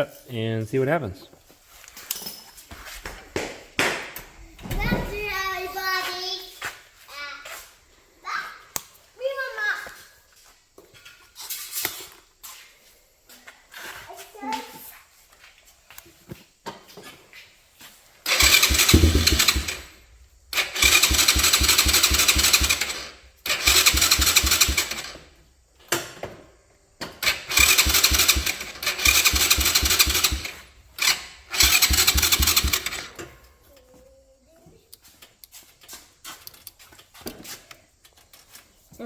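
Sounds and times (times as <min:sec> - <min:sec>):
electric starter cranking engine: 0:18.2 - 0:25.4, 0:27.1 - 0:33.4.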